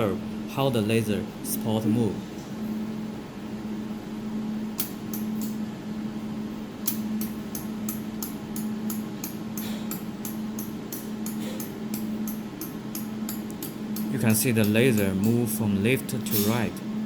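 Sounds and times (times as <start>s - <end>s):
laser welding machine humming: 3.8s - 17.0s.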